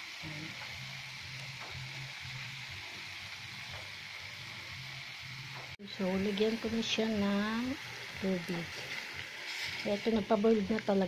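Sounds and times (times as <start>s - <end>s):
food sizzling in a pan: 0.0s - 11.0s
spatula stirring: 8.7s - 10.2s.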